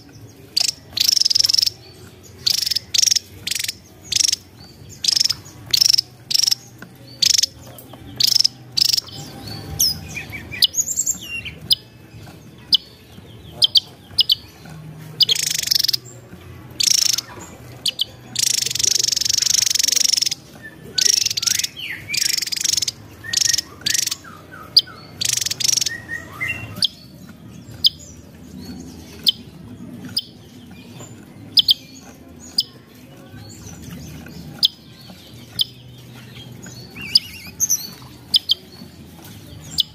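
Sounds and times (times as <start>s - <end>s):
buzzy bird phrase: 0.4s - 11.8s, 16.7s - 27.2s.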